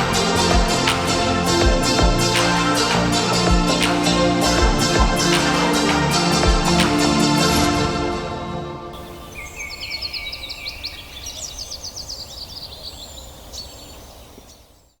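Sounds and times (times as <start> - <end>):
background music: 0.0 - 10.4
bird chirping: 9.0 - 15.0.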